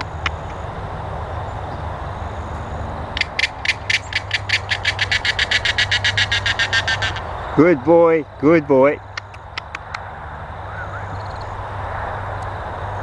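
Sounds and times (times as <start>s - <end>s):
fast sharp ticks: 3.2s - 6.7s, 9.1s - 10.1s.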